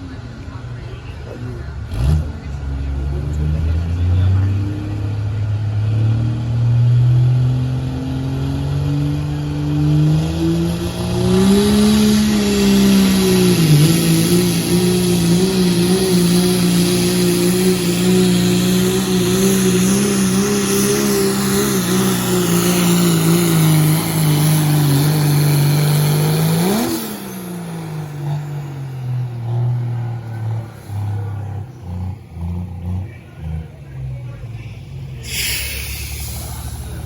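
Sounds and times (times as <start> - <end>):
diesel engine at full throttle: 0.0 - 37.0
turbo hiss: 35.2 - 37.0.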